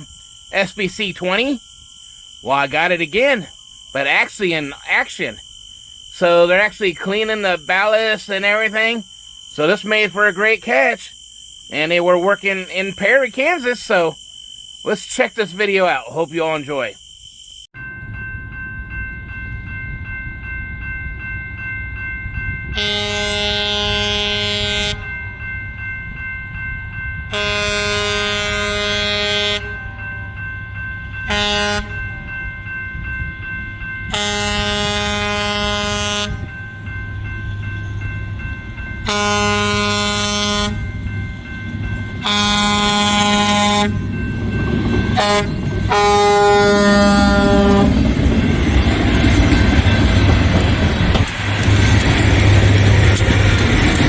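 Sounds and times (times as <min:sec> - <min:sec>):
train horn: 0:22.7 - 0:25.1, 0:27.3 - 0:30.3, 0:31.2 - 0:32.2, 0:34.1 - 0:36.6, 0:39.0 - 0:40.8, 0:42.2 - 0:44.0, 0:45.1 - 0:48.0.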